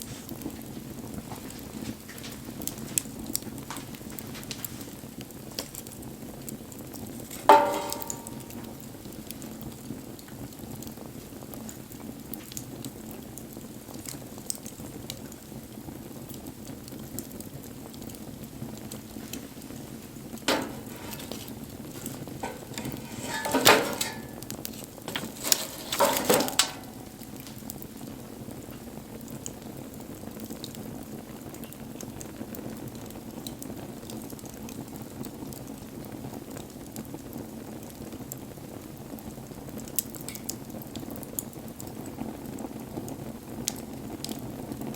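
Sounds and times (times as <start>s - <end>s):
wood fire crackling: 0.0s - 44.9s
knocks in fire: 7.2s - 8.9s, 20.2s - 27.8s.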